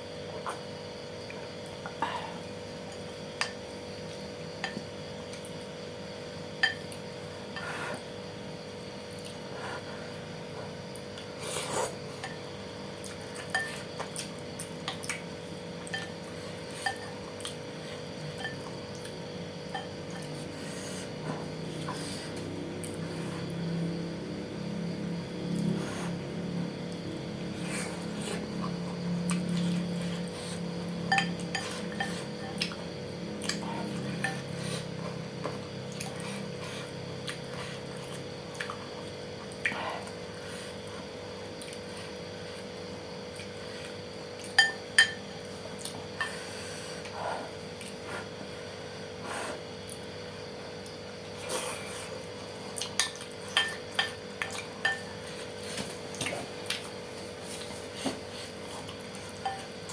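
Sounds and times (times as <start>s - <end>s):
cutlery clinking against bowl: 13.4s - 13.9s, 31.0s - 32.8s, 44.4s - 45.2s, 52.9s - 55.3s, 59.4s - 59.9s.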